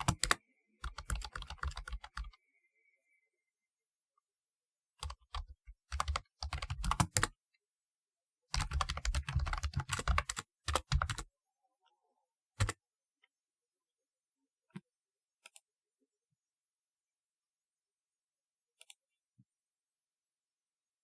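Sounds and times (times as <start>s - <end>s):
computer keyboard typing: 0.0s - 2.4s, 5.0s - 7.3s, 8.5s - 11.3s.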